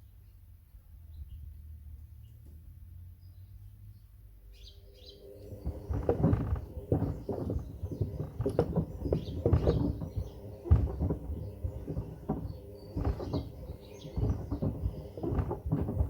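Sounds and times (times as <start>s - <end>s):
wood clattering in washing machine drum: 5.5s - 16.0s.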